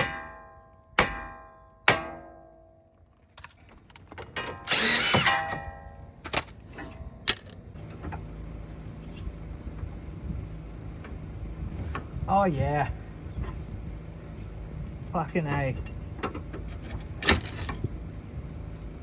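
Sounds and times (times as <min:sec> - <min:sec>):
metal-on-metal strikes ringing: 0:00.0 - 0:02.9.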